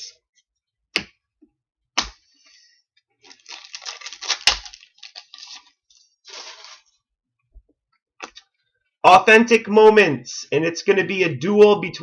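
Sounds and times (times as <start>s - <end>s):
cards rustling and sliding: 5.1s - 7.0s.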